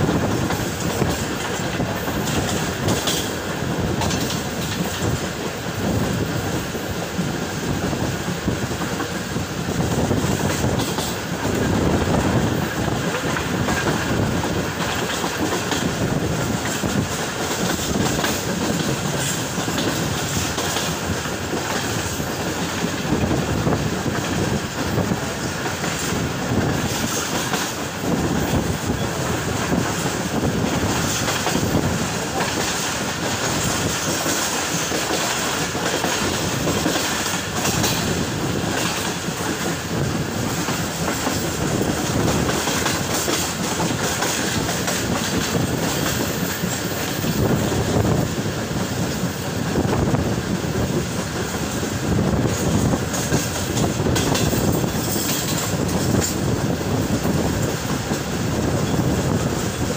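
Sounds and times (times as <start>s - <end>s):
train rumble: 0.0s - 59.9s.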